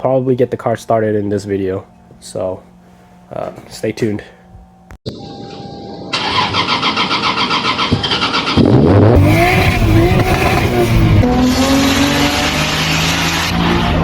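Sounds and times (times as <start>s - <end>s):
car engine cranking and revving: 6.2s - 14.0s.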